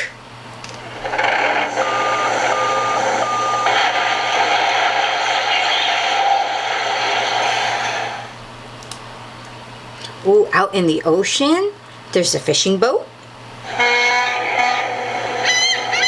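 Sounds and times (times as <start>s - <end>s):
truck engine running: 0.7s - 8.3s
reversing beeps: 1.0s - 7.3s.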